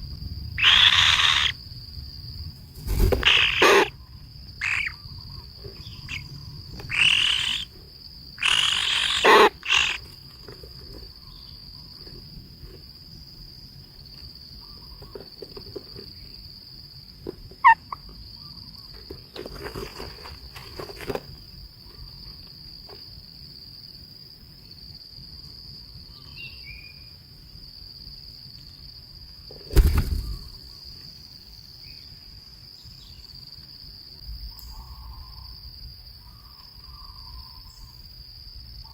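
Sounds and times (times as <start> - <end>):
crickets trilling: 0.0 - 38.9
harsh noisy bursts: 3.2 - 3.9.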